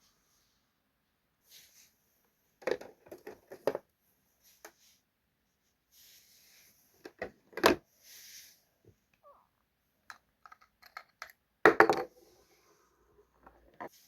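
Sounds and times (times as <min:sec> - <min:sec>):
small items clicking and tapping: 0:10.1 - 0:12.1.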